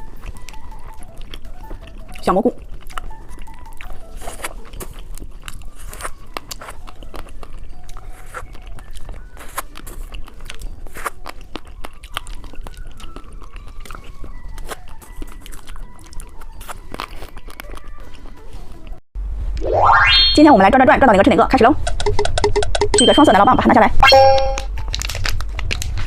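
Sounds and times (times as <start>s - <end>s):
candy crunching while chewed: 0.0s - 19.0s, 24.6s - 26.0s.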